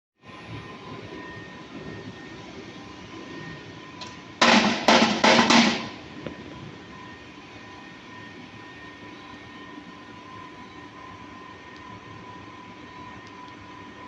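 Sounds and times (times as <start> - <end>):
machine hum with high whine: 0.2 - 14.0
loud bangs: 4.4 - 6.1.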